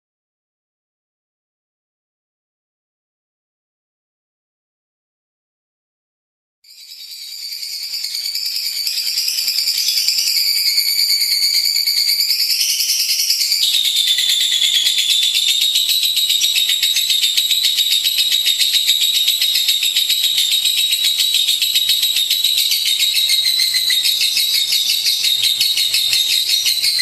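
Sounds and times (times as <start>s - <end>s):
bird chattering trill: 6.8s - 27.0s.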